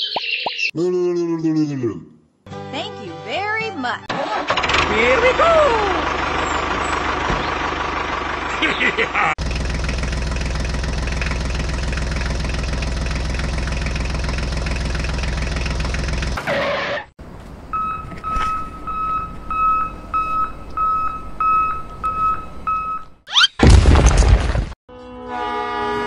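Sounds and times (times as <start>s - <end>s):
tractor engine running: 4.0s - 16.4s
vehicle reversing beeper: 17.7s - 23.2s.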